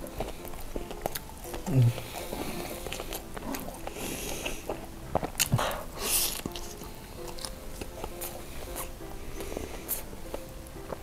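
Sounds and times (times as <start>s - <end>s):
biting and chewing food: 0.0s - 11.0s
soft background music: 0.0s - 11.0s
wet mouth clicks: 5.2s - 5.6s.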